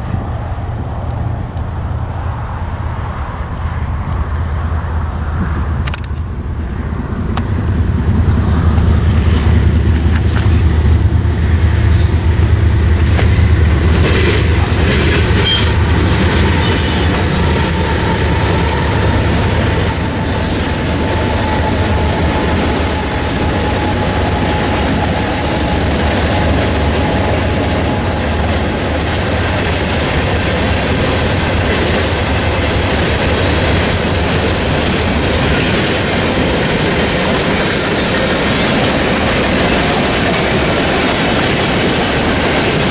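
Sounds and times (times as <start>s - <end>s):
freight cars rolling with clacking wheels: 0.0s - 42.9s
locomotive engine rumble: 0.0s - 42.9s.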